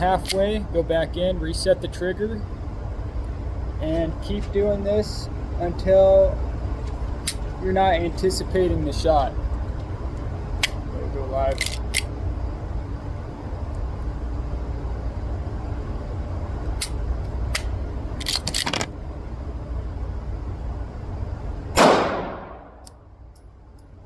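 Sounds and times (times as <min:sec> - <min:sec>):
steady low rumble: 0:00.0 - 0:24.0
pistol shots: 0:21.8 - 0:22.8.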